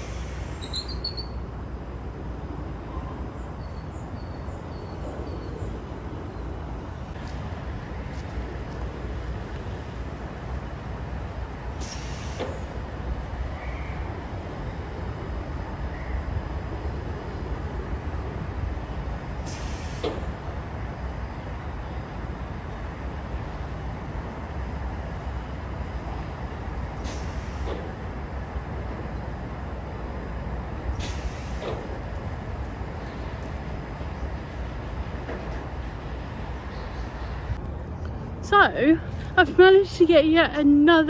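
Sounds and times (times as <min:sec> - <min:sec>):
sharp hiss of air: 0:00.0 - 0:01.1, 0:11.8 - 0:12.8, 0:19.4 - 0:20.4, 0:27.0 - 0:27.9, 0:31.0 - 0:32.0
low outdoor rumble: 0:00.0 - 0:11.9, 0:20.2 - 0:41.0.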